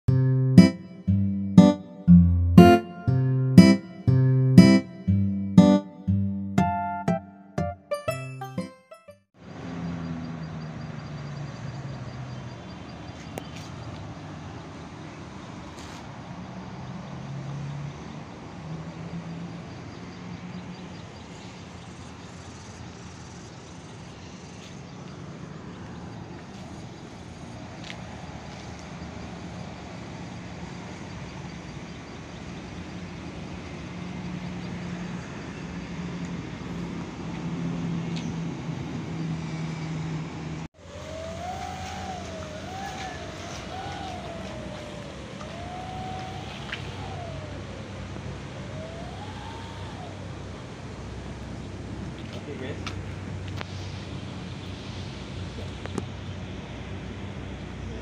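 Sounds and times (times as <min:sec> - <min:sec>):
steady outdoor hiss: 0:40.8 - 0:58.0
model plane propeller buzz: 0:41.0 - 0:50.3.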